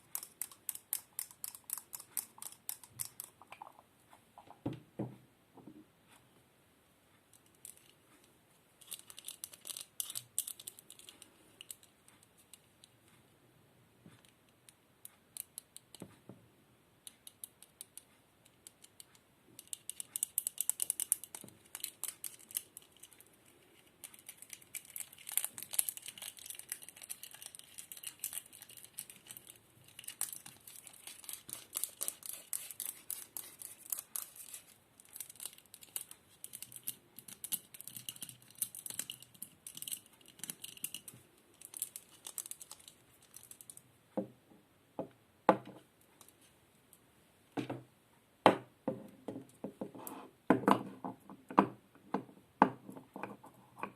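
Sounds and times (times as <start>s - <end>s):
crinkly material crinkling: 8.8s - 13.2s, 21.0s - 43.8s.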